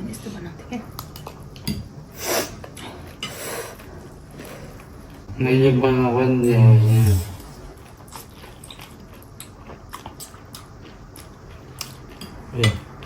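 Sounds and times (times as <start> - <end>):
person chewing food: 7.7 - 13.0.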